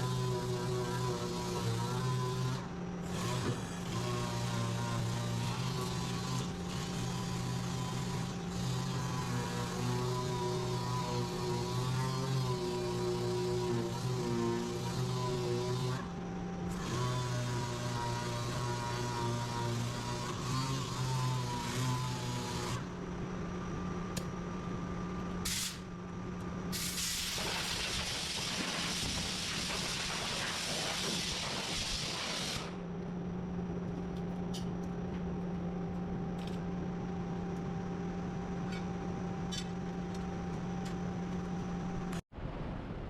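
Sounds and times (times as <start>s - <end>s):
hissing spray of air: 25.5s - 25.8s, 26.7s - 32.7s
low machine hum: 32.6s - 43.0s.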